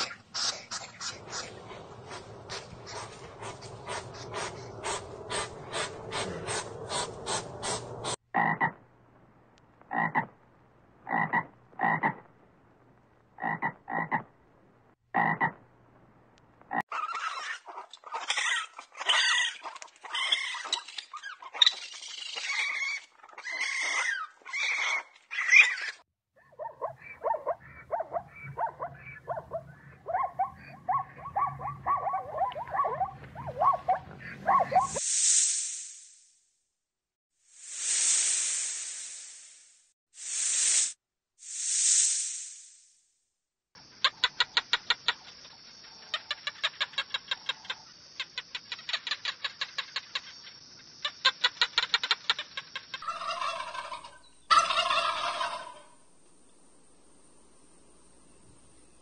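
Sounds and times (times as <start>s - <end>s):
raccoon calling: 0.0s - 8.8s, 16.7s - 35.0s.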